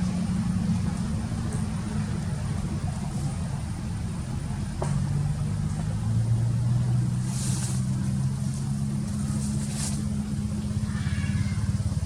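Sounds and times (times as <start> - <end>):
engine humming: 0.0 - 12.0
brief hiss: 7.2 - 7.9.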